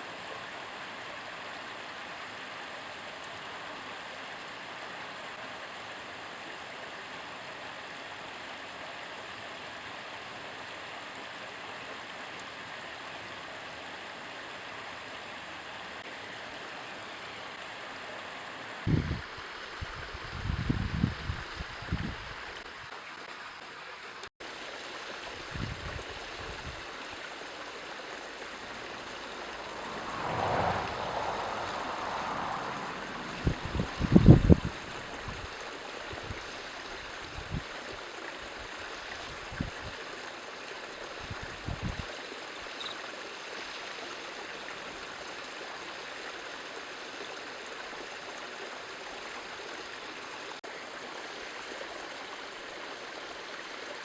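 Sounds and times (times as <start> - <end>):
outdoor rushing noise: 28.2 - 35.6.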